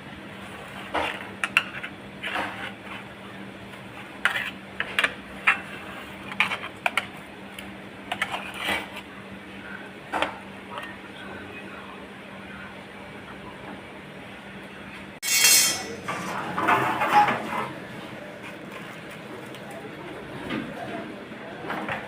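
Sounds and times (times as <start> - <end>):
dishes and utensils clinking: 15.2 - 17.7.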